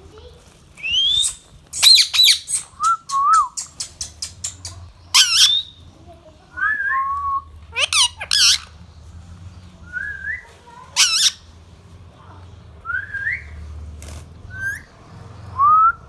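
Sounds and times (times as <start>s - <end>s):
parakeet rising whistles: 0.8s - 4.6s, 12.9s - 13.6s, 14.5s - 14.9s
parakeet harsh screech: 7.8s - 8.7s, 11.0s - 11.4s.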